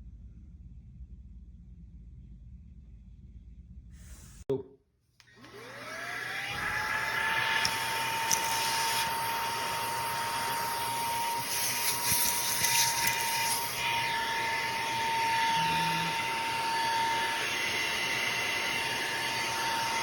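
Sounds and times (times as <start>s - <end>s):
vacuum motor whine: 5.3s - 20.0s.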